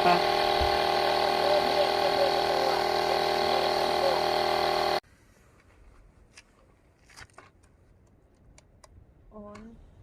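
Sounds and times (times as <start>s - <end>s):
air compressor running: 0.0s - 5.0s.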